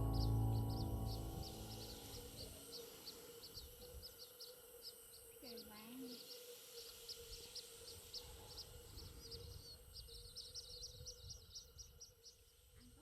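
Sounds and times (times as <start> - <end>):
faint hum: 0.0 - 11.9
small birds chirping: 0.0 - 13.0.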